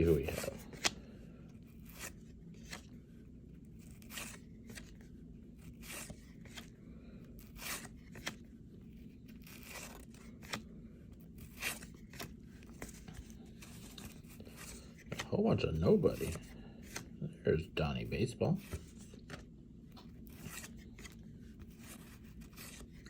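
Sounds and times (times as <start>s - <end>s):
cards flipped through: 0.0s - 3.0s, 3.7s - 6.8s, 7.4s - 17.2s, 18.6s - 23.0s
low room hum: 0.0s - 23.0s.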